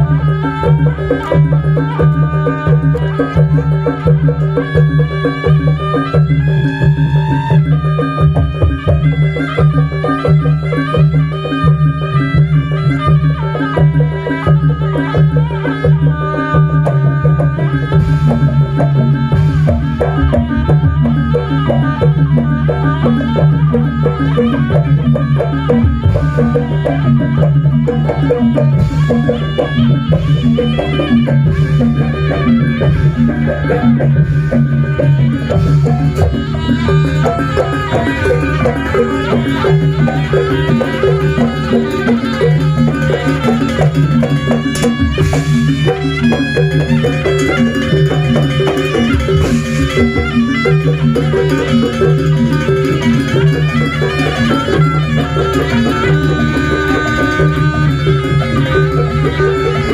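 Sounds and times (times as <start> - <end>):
drums and gongs beat: 0.0 - 59.9
reedy wind instrument melody: 0.0 - 59.9.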